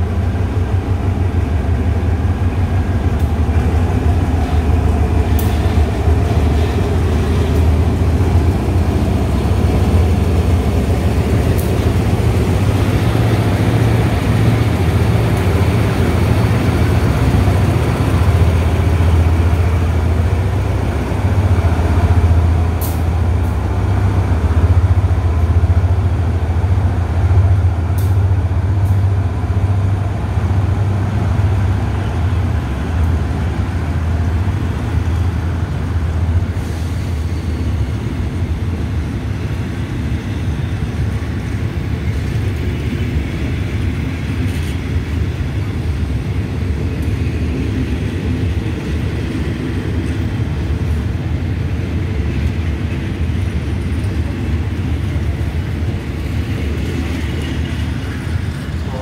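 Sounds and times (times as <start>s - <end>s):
diesel locomotive drone: 0.0s - 59.0s
train wheels rumbling on rail: 0.0s - 59.0s.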